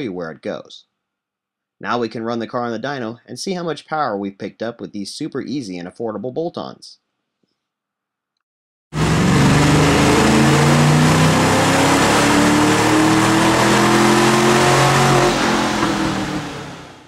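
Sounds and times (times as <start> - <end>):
car engine revving high: 9.0 - 17.0.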